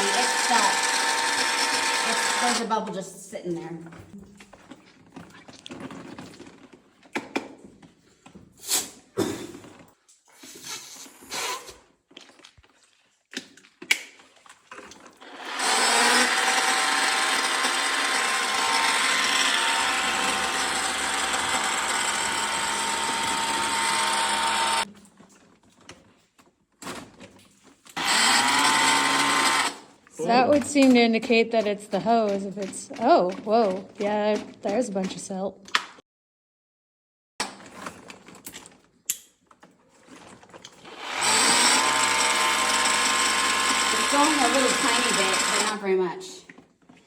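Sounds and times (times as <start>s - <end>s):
pressure washer running: 0.0s - 2.8s, 15.2s - 24.9s, 28.0s - 30.4s, 40.8s - 45.9s.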